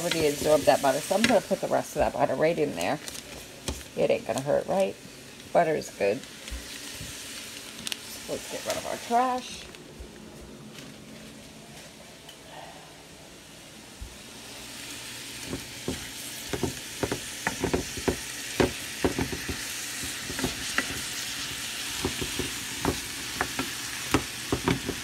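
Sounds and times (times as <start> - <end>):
wooden spoon knocking and scraping pan: 0.0 - 2.3, 15.4 - 21.1, 21.9 - 25.0
food sizzling in a frying pan: 0.0 - 9.6, 14.5 - 25.0.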